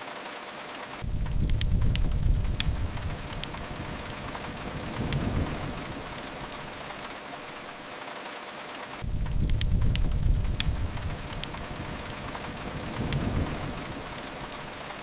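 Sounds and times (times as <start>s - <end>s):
steady rain hiss: 0.0s - 15.0s
wood fire crackling: 0.0s - 15.0s
deep low rumble: 1.0s - 6.8s, 9.0s - 14.7s.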